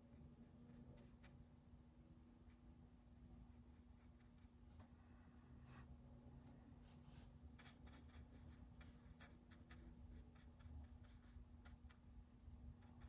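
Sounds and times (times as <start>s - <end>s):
low electrical hum: 0.0s - 13.0s
paintbrush scratching on paper: 6.8s - 12.0s.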